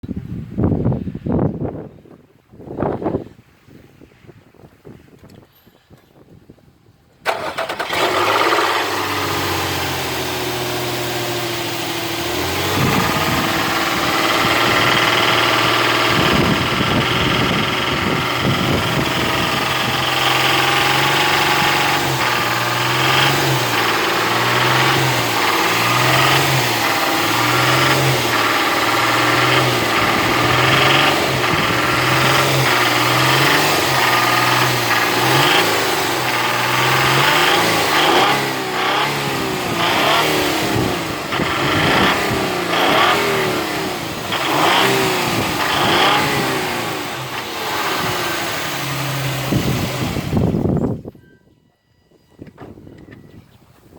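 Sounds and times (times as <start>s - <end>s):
engine knocking: 7.3s - 50.6s
car engine revving: 7.3s - 50.7s.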